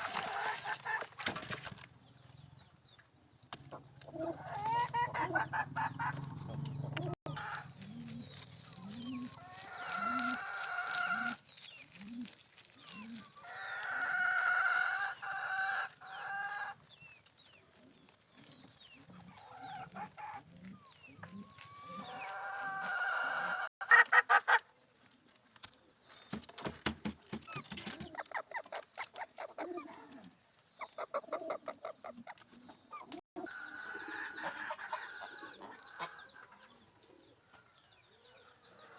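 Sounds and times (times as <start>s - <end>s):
hens clucking: 0.0s - 1.3s, 3.6s - 24.7s, 28.0s - 38.9s
roosters crowing: 9.0s - 11.5s, 13.0s - 16.8s, 21.3s - 23.7s, 33.4s - 36.2s.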